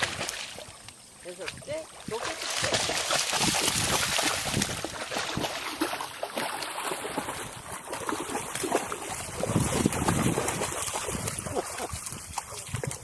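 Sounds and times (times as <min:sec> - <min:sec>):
water splashing and sloshing: 0:00.0 - 0:13.0
wind noise on microphone: 0:02.6 - 0:05.8, 0:07.0 - 0:13.0.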